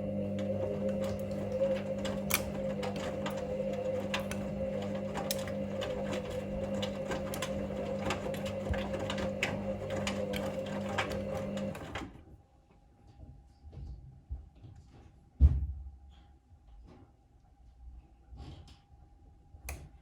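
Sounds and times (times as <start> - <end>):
washing machine motor humming: 0.0 - 12.3.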